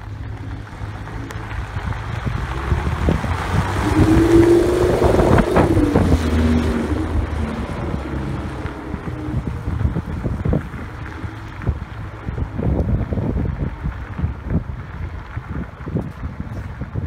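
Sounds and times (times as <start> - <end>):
car engine driving past: 0.0 - 12.8.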